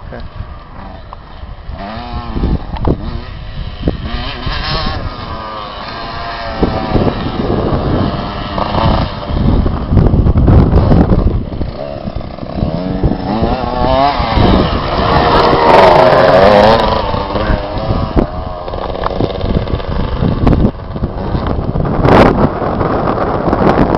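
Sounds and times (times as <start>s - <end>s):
motocross bike engine revving: 0.1s - 23.9s.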